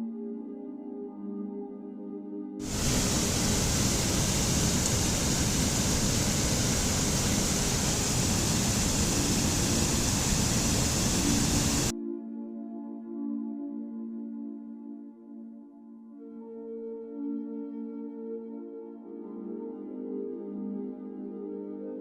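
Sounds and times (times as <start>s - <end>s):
loud rushing noise: 2.6s - 11.9s
soft ambient music: 12.0s - 22.0s.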